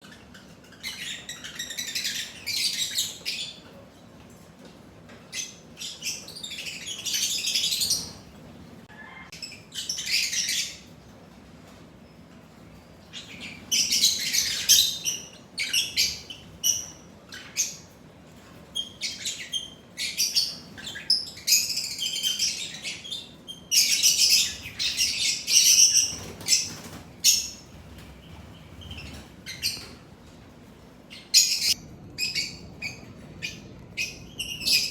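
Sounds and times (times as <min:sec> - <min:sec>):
lovebirds chirping shrilly: 0:31.1 - 0:34.9.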